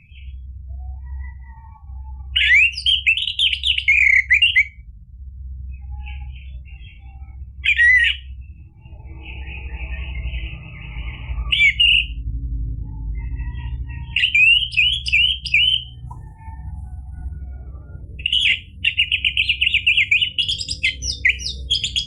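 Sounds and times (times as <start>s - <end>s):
steady low hum: 0.0s - 22.0s
thrush singing: 14.1s - 22.0s.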